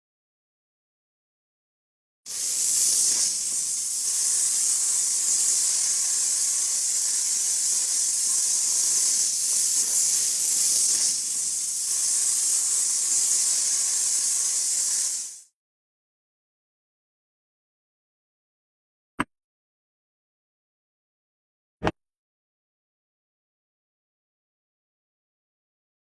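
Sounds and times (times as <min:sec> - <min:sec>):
steady high hiss: 0:02.3 - 0:15.4.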